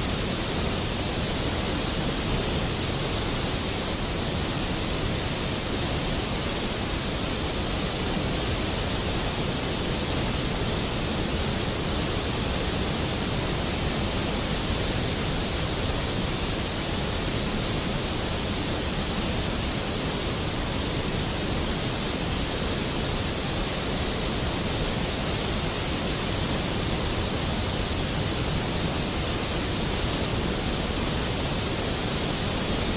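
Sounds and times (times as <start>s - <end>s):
water rushing down a spillway: 0.0s - 32.9s.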